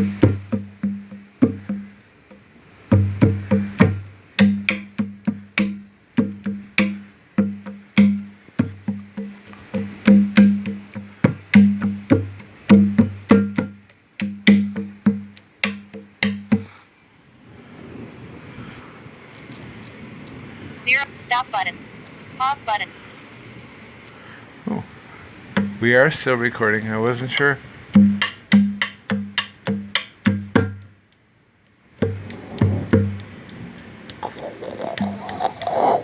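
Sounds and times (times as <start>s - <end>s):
conga drum played by hand: 0.0s - 16.8s, 25.6s - 25.8s, 27.9s - 30.9s, 32.0s - 33.3s, 34.2s - 36.0s
heavy rain hissing: 8.4s - 13.3s, 16.5s - 28.0s, 32.0s - 36.0s.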